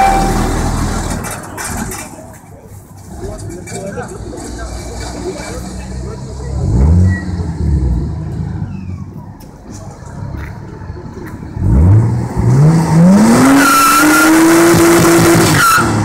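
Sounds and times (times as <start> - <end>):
car engine revving: 4.4 - 9.0, 11.2 - 16.0
tyres squealing in a burnout: 13.3 - 16.0.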